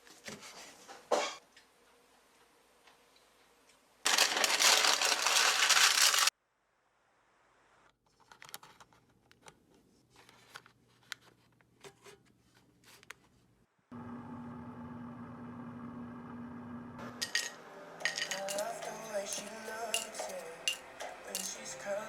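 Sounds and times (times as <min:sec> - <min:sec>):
appliance humming: 0:13.9 - 0:17.9
kitchen clicks and taps: 0:17.2 - 0:21.6.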